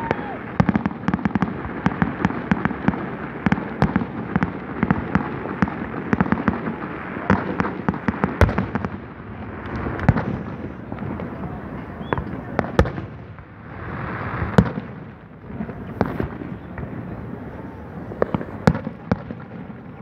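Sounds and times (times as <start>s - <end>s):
fireworks crackling and popping: 0.0s - 20.0s.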